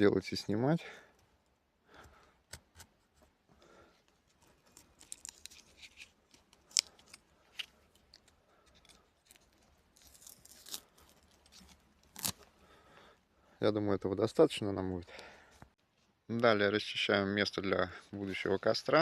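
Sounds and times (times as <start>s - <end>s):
bark tearing and rasping: 9.2s - 12.4s.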